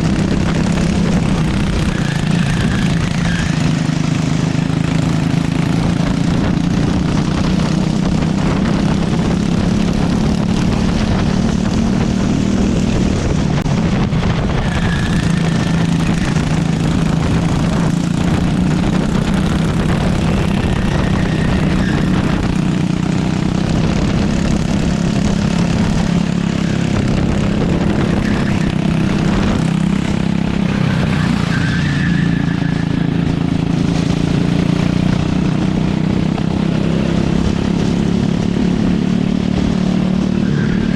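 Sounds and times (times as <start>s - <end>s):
high-pitched squeals: 0.0s - 5.4s, 14.2s - 23.1s, 25.6s - 33.6s, 40.1s - 40.9s
go-kart engine revving: 0.0s - 40.9s.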